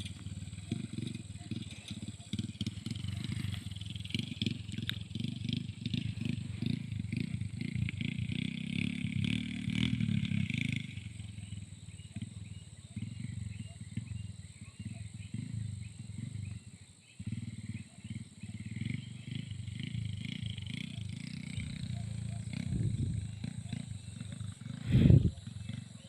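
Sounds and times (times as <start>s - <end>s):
motorcycle engine at low revs: 0.0s - 26.0s
loud low rumble: 24.6s - 25.4s.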